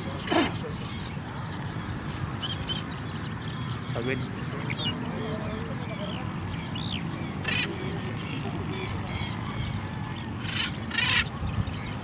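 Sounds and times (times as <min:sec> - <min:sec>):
parrots chirping and screeching: 0:02.4 - 0:11.9.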